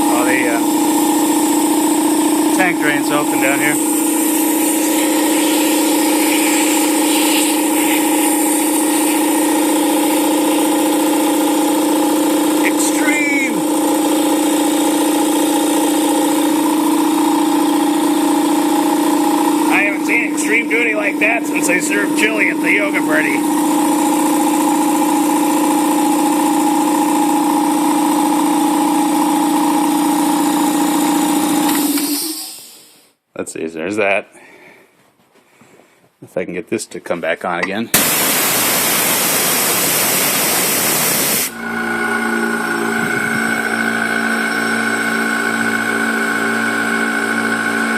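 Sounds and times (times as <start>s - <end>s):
air compressor pumping hum: 0.0s - 33.2s, 37.9s - 47.9s
air hissing: 3.1s - 10.8s, 31.7s - 33.0s, 38.0s - 41.6s.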